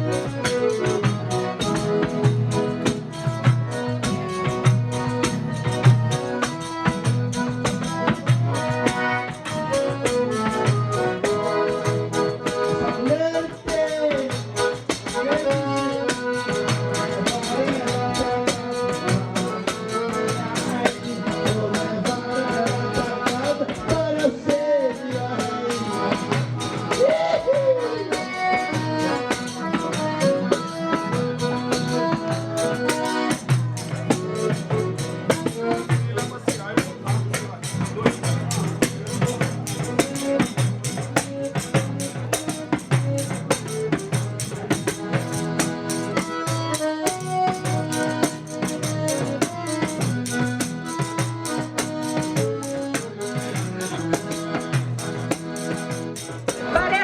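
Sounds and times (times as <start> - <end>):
percussion rattling: 0.0 - 57.0
voices singing short phrases: 27.0 - 28.2.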